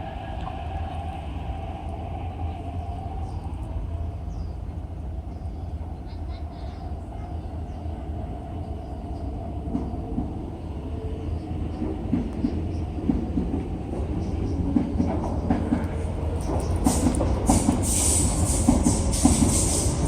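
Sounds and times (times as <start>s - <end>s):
train wheels clicking over track: 11.7s - 20.0s
high hiss: 16.9s - 20.0s.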